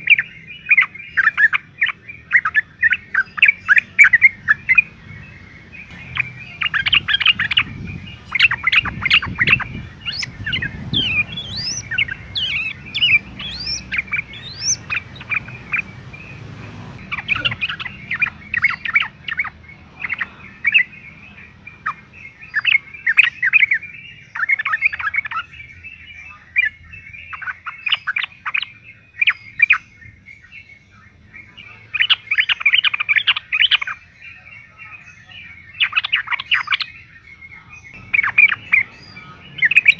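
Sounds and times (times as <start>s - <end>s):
bird chirping: 0.0s - 39.9s
thin rising whistles: 4.1s - 22.0s.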